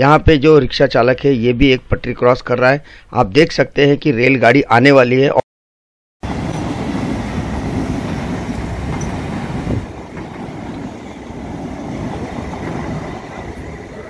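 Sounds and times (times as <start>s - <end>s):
train wheels running on rails: 6.2s - 14.0s.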